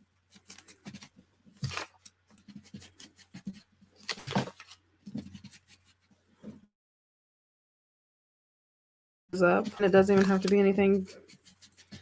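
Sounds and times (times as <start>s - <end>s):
sponge scratching on paper: 0.2s - 6.3s, 9.4s - 12.0s.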